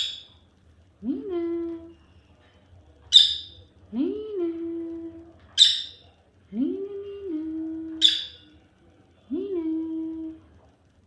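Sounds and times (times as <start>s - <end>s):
person humming wordlessly: 1.0s - 1.9s, 6.5s - 8.0s, 9.3s - 10.4s
bird shrill chirps: 3.2s - 3.6s, 5.6s - 6.0s, 8.0s - 8.4s.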